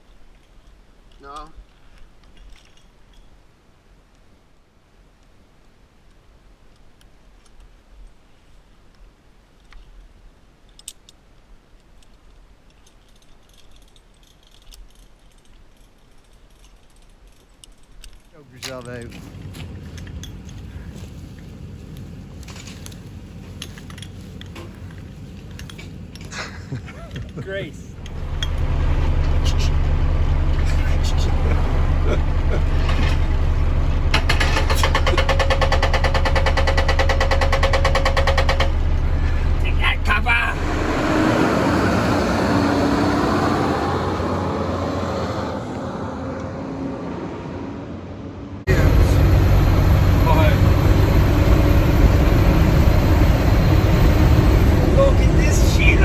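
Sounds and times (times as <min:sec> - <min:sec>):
light clicks and rattles: 0:09.6 - 0:27.4
mechanical rattle with whine: 0:12.9 - 0:26.4, 0:28.0 - 0:41.0, 0:48.7 - 0:56.0
steady low rumble: 0:19.0 - 0:40.9, 0:47.9 - 0:56.0
truck engine idling: 0:27.9 - 0:43.0, 0:48.7 - 0:56.0.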